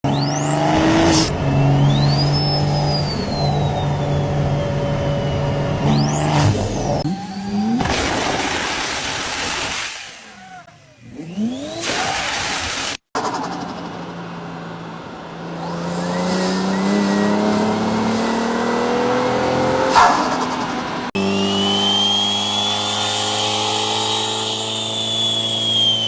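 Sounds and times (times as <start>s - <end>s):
turbo whistle: 0.0s - 7.5s, 21.2s - 26.0s
car engine revving: 0.0s - 9.5s, 10.4s - 26.0s.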